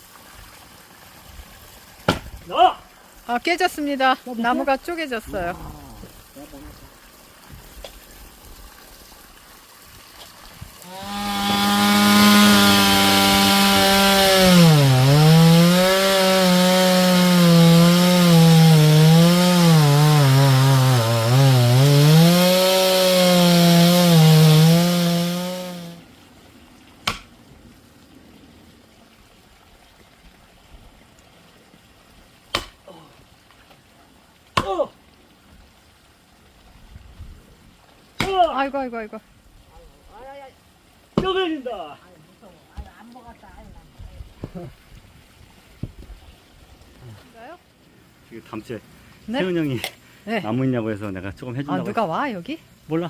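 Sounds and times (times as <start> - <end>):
chainsaw cutting wood: 10.8 - 26.0.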